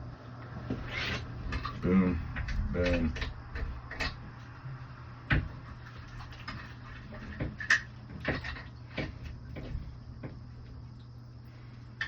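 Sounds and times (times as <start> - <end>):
steady low hum: 0.0 - 12.0
clicks and knocks of handled fittings: 0.7 - 4.5, 6.2 - 10.4.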